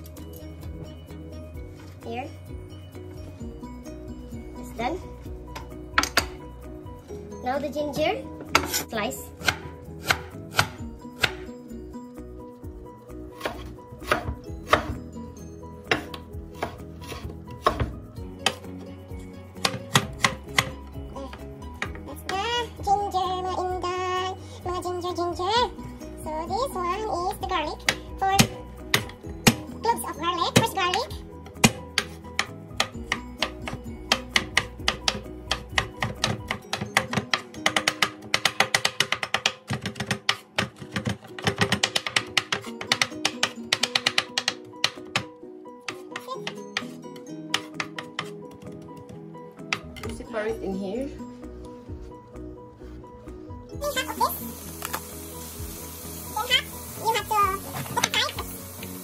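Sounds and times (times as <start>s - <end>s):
background music: 0.0s - 59.0s
knife chopping on wooden board: 9.4s - 11.5s, 13.4s - 15.0s, 15.9s - 18.7s, 19.6s - 20.8s, 45.9s - 49.1s
knife striking wooden cutting board: 13.4s - 15.0s.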